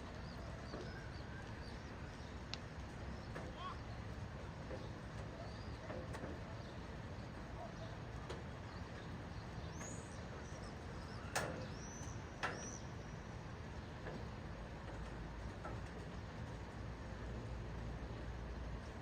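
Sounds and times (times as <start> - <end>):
bird chirping: 6.6 - 13.2.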